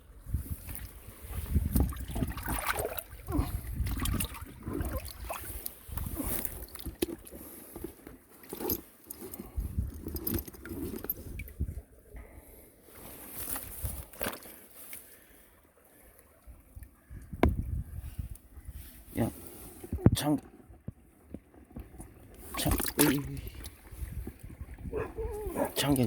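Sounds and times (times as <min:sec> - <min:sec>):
stream water gurgling: 0:00.0 - 0:09.2, 0:20.9 - 0:26.0
low rumbling on microphone: 0:17.2 - 0:18.8, 0:23.4 - 0:25.8.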